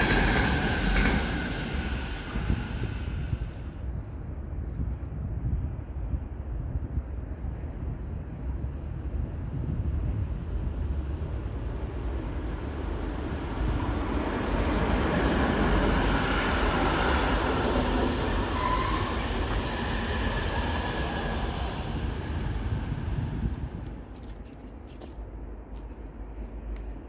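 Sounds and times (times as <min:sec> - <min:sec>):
passenger train running past: 0:00.0 - 0:04.2, 0:07.6 - 0:24.2.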